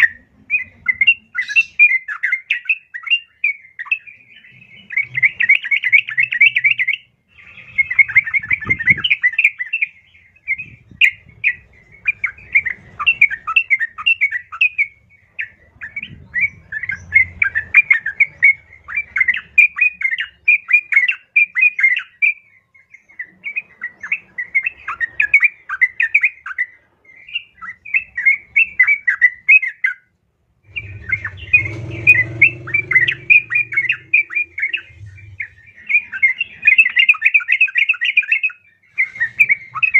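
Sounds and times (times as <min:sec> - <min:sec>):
low rumble: 0:30.6 - 0:36.0
bird chattering calls: 0:30.7 - 0:37.6.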